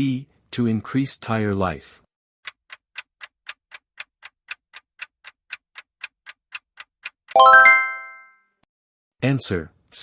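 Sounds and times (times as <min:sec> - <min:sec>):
countdown timer ticking: 0:03.5 - 0:08.3.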